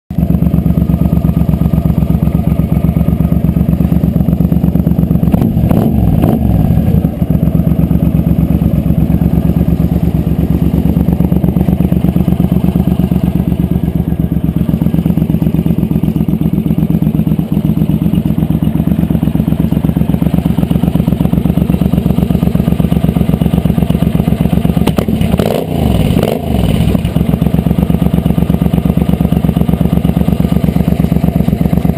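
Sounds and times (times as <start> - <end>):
motorcycle engine idling: 0.1 - 31.9.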